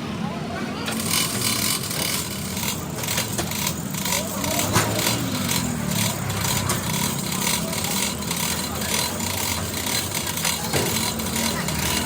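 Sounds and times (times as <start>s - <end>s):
machinery humming: 0.8s - 12.0s.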